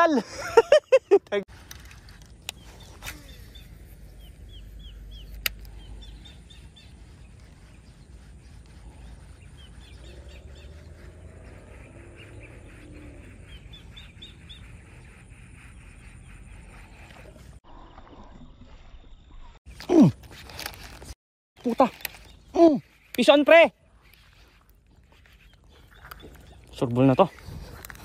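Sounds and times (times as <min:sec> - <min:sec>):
bird chirping: 0:02.5 - 0:17.4, 0:21.6 - 0:28.0.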